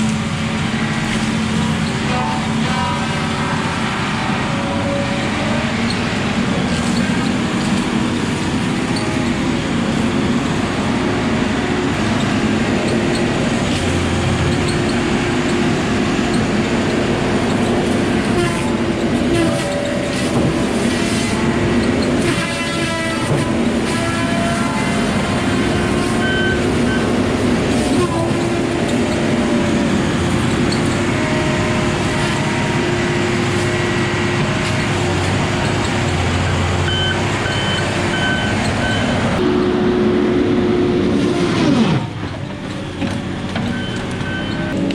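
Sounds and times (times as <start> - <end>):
diesel machinery droning: 0.0 - 44.9
high squeals and creaks: 12.0 - 39.4.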